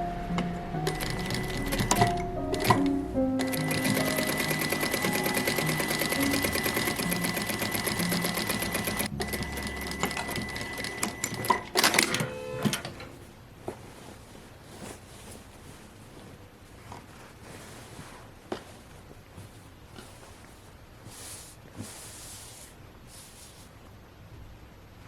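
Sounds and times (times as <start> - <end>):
sewing machine stitching: 0.8 - 13.0.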